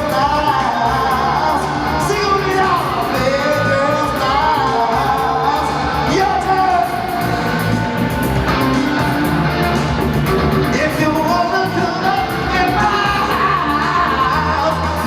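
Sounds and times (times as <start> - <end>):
electric guitar: 0.0 - 15.0
steady drum beat: 0.0 - 15.0.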